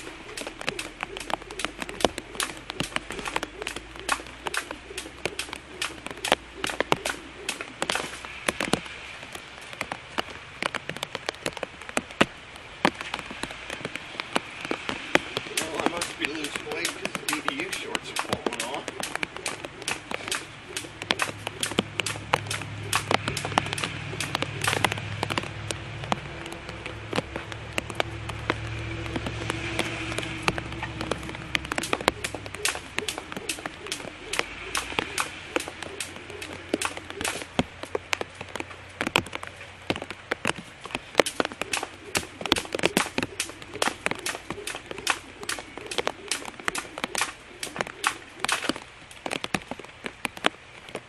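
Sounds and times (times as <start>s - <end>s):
steady hiss: 0.0s - 27.4s
raindrops ticking on a surface: 0.0s - 51.0s.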